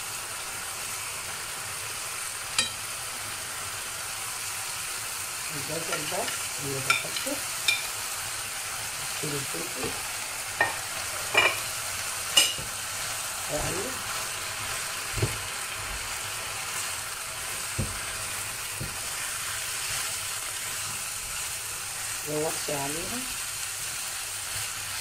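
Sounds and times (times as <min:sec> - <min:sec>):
food sizzling in a frying pan: 0:00.0 - 0:25.0
spatula clinking against pan: 0:02.6 - 0:02.8.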